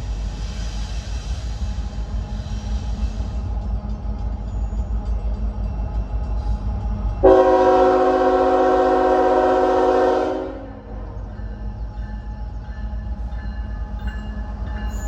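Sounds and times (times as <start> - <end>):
locomotive air horn blast: 7.2 - 10.9.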